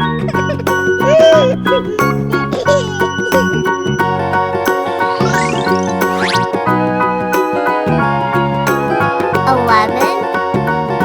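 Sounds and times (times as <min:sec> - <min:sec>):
cheerful children's music: 0:00.0 - 0:11.0
warbling sound effect: 0:04.9 - 0:06.6.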